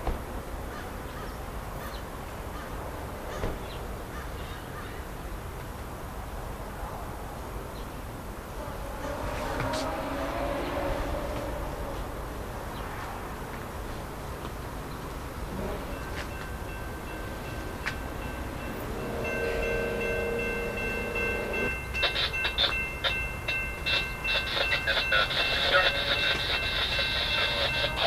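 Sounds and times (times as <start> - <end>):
train horn: 8.5 - 12.2, 15.5 - 16.2, 18.6 - 22.8, 23.9 - 28.0.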